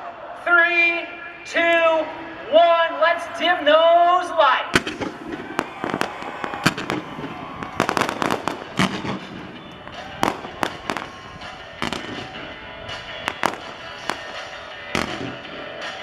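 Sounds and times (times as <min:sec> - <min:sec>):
music playing: 0:01.0 - 0:16.0
fireworks bangs: 0:04.7 - 0:16.0
fireworks crackling: 0:04.7 - 0:16.0.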